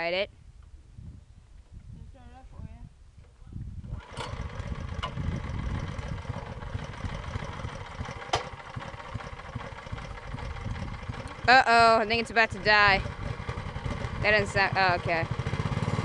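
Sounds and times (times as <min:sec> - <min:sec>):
dirt bike engine idling: 0:04.0 - 0:16.0.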